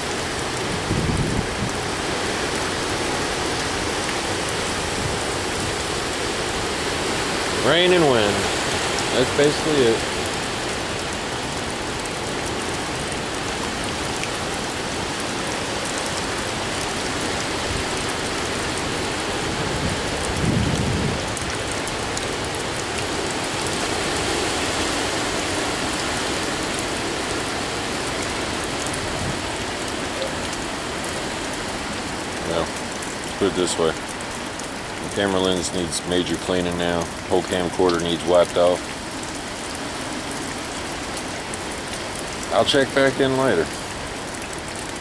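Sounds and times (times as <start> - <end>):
heavy rain hissing: 0.0 - 45.0
wind: 0.0 - 45.0.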